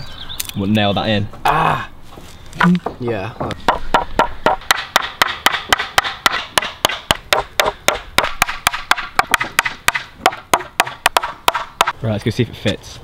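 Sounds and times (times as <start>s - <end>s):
hammer driving nails into wood: 3.7s - 11.9s.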